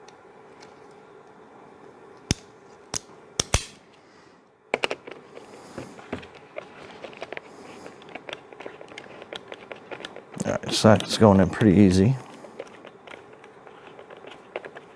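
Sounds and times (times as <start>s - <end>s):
metallic tool clicks: 2.3s - 3.8s.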